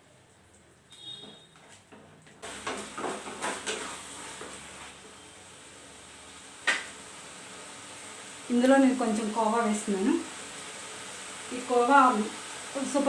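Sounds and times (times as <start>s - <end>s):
cooking mixture hissing: 2.4s - 13.0s
ladle knocking and scraping pan: 2.6s - 4.6s.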